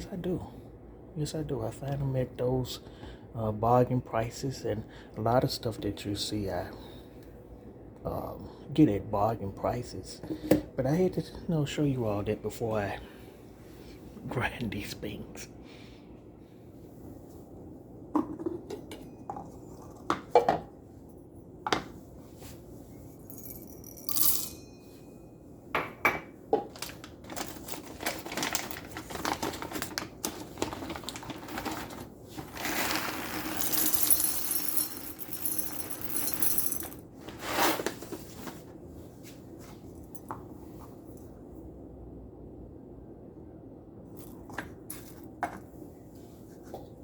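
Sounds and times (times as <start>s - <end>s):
coffee beans rattling into cup: 23.3s - 24.6s, 26.6s - 37.0s.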